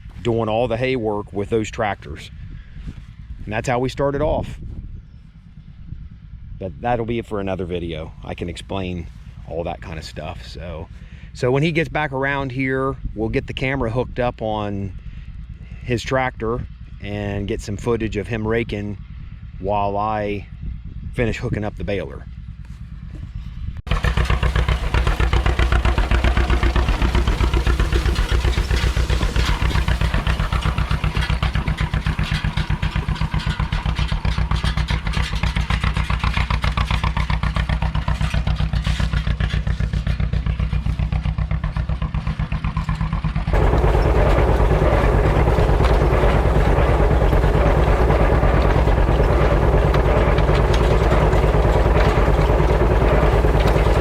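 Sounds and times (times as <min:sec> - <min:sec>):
tractor engine running: 0:23.9 - 0:54.0.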